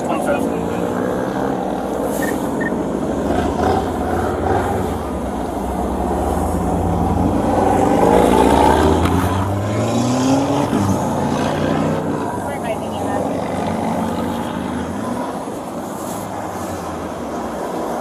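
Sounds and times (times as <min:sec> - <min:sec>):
vehicle engines running: 0:00.0 - 0:18.0
engine revving up: 0:06.0 - 0:12.2.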